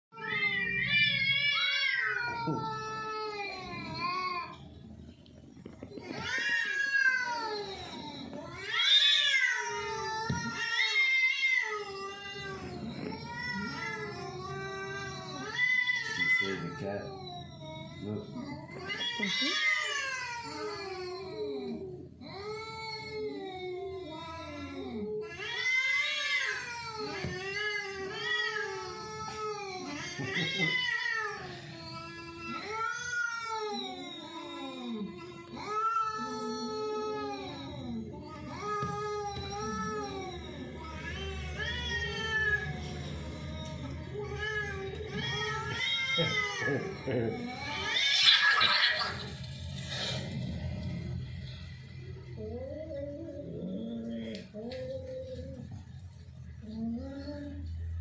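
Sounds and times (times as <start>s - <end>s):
cat meowing: 5.9s - 21.9s, 32.2s - 49.5s.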